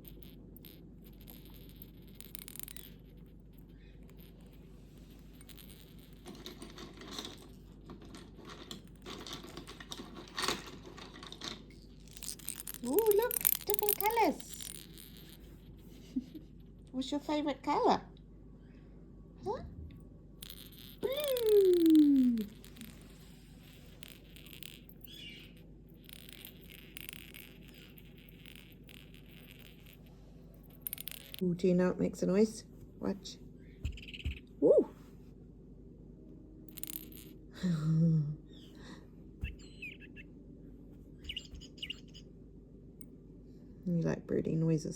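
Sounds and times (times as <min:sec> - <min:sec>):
toy pieces clicking and rattling: 0:00.0 - 0:16.4, 0:20.4 - 0:31.4, 0:36.7 - 0:37.4
parrot chirp: 0:33.9 - 0:34.5, 0:39.4 - 0:40.3, 0:41.2 - 0:42.3.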